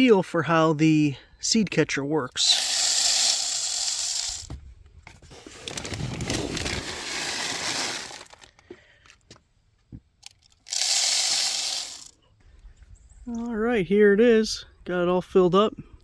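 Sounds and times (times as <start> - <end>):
bird seed pouring into feeder: 2.4 - 4.5, 5.6 - 8.5, 10.7 - 12.1
seeds clicking: 2.4 - 4.5, 5.7 - 8.6, 10.2 - 12.1
bag crinkling: 5.3 - 8.6, 10.7 - 12.1.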